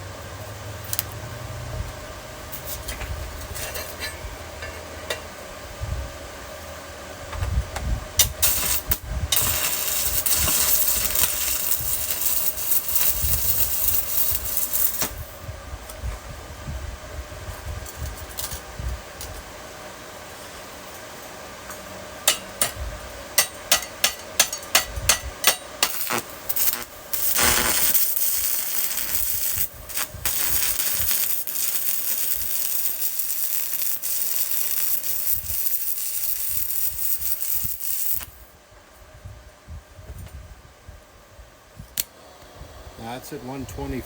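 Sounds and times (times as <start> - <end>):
welder cooling fan hum: 0.0 - 44.0
welding arc crackling sizzle: 0.4 - 1.4, 8.2 - 15.4, 23.4 - 38.5
electrode clicking on metal plate: 23.4 - 38.3.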